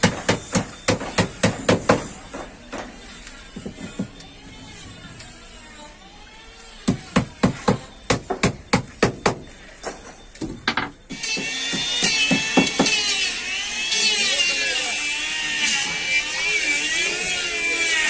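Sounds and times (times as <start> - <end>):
loud rasping noise: 3.0 - 8.3.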